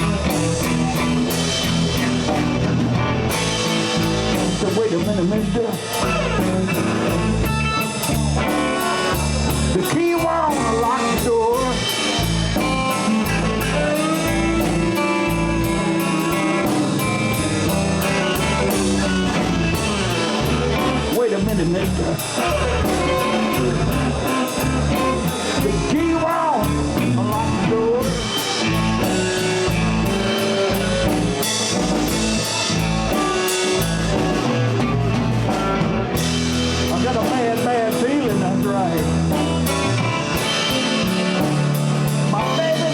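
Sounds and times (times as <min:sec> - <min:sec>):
bass: 0:00.0 - 0:42.9
blues band playing: 0:00.0 - 0:42.9
drums with cymbal beat: 0:00.0 - 0:42.9
electric guitar: 0:00.0 - 0:42.9
person singing: 0:08.8 - 0:12.2, 0:18.0 - 0:31.6.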